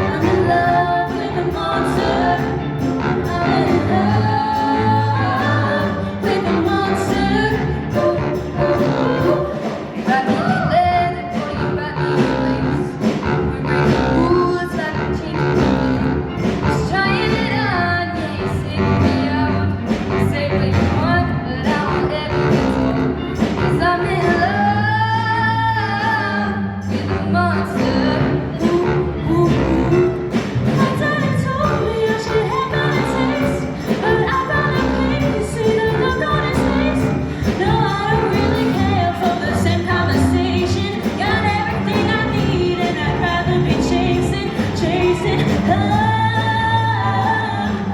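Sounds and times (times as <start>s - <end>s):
choir singing: 0.0s - 10.5s
band with bass drums guitar: 0.0s - 47.9s.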